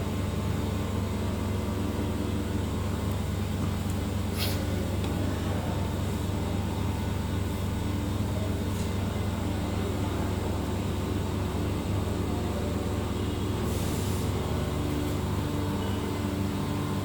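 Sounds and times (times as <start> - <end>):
short hiss: 4.3 - 4.7.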